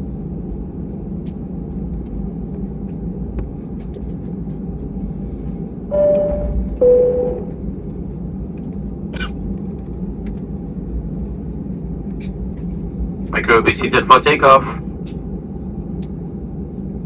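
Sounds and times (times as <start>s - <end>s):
low cabin rumble: 0.0s - 17.0s
two-tone chime: 5.9s - 7.5s.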